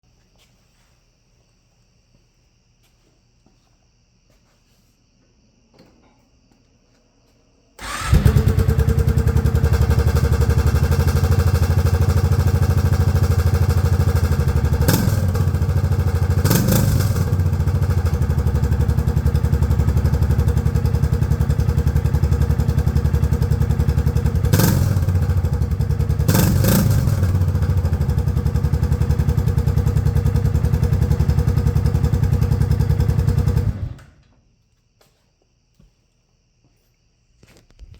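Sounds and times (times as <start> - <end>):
engine running with throttle blips: 7.8 - 34.2.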